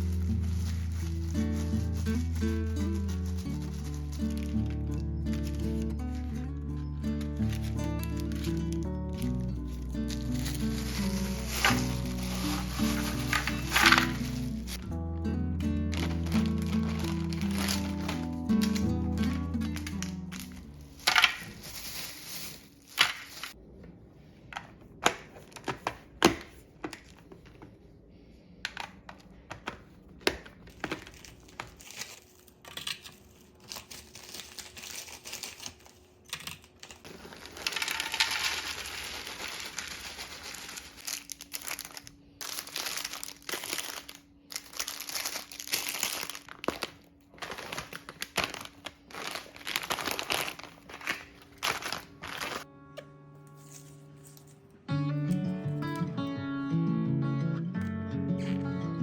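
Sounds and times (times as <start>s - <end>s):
plastic packaging crinkling: 0.0s - 14.9s, 15.8s - 23.6s, 29.3s - 52.7s
items clicking and knocking: 7.2s - 14.8s, 15.9s - 23.6s, 24.5s - 27.8s, 28.6s - 34.0s, 36.2s - 44.2s, 44.8s - 52.7s.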